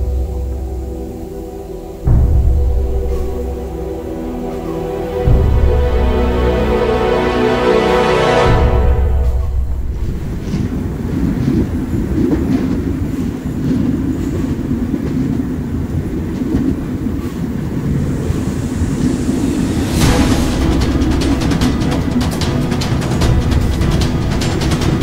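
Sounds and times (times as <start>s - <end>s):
train wheels rumbling on track: 0.0s - 25.0s
wheels clattering: 10.1s - 25.0s.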